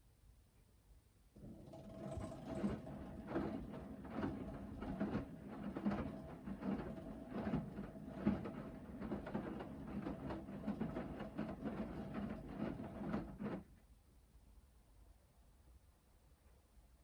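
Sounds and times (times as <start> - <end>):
washing machine motor hum: 1.4 - 13.6.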